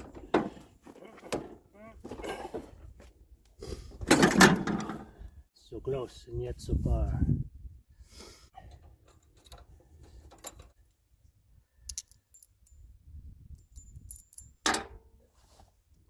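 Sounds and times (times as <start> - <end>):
light metallic clinks and clicks: 11.8 - 14.9.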